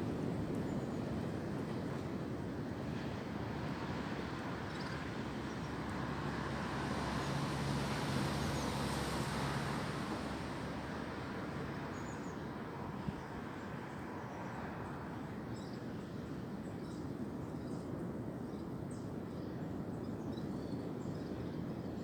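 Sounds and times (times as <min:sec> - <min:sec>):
wind: 0:00.0 - 0:22.0
passing vehicle engine hum: 0:05.0 - 0:12.3.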